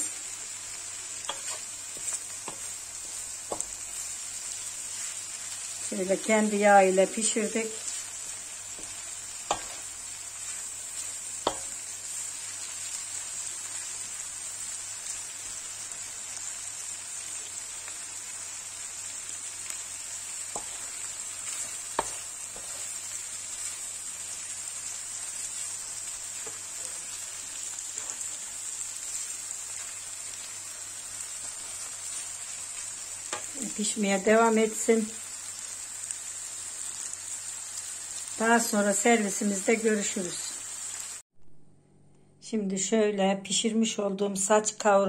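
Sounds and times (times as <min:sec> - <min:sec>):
meat and vegetables sizzling: 0:00.0 - 0:41.3
wooden spoon knocking on pan: 0:03.4 - 0:03.8, 0:08.8 - 0:09.8, 0:11.4 - 0:11.8, 0:21.9 - 0:22.7.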